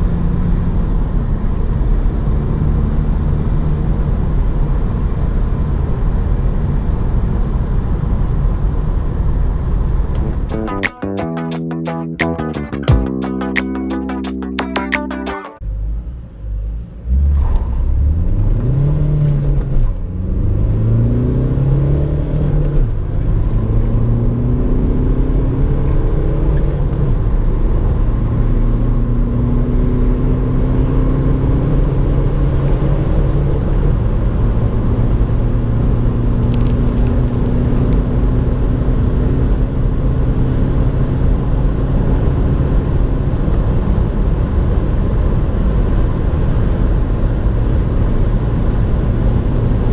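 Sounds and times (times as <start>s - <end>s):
road and wind noise: 16.8s - 49.9s.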